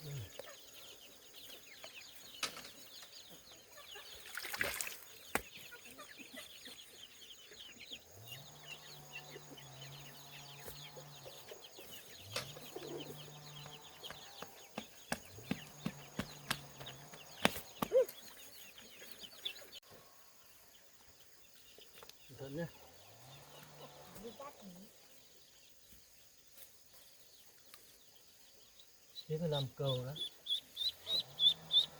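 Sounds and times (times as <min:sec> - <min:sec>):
ducklings peeping: 0:05.2 - 0:19.8, 0:27.1 - 0:31.9.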